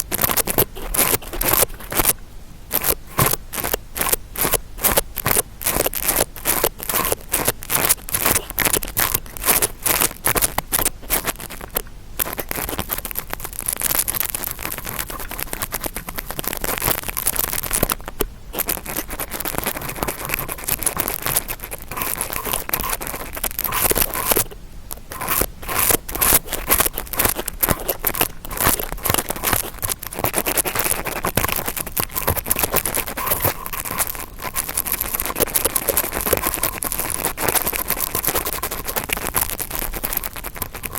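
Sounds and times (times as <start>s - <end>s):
brush scratching and scraping: 0.0s - 40.9s.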